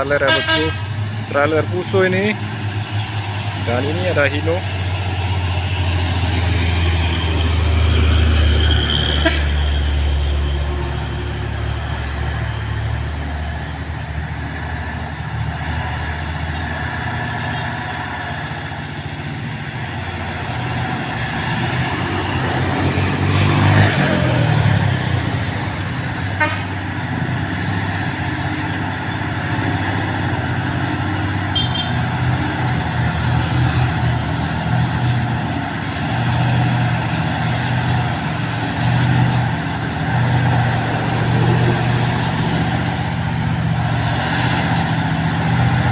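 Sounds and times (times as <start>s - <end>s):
diesel truck engines running: 0.0s - 45.9s
truck passing by: 0.0s - 45.9s
truck horn toot: 0.2s - 1.0s, 8.9s - 9.8s, 26.3s - 26.9s, 31.5s - 32.1s.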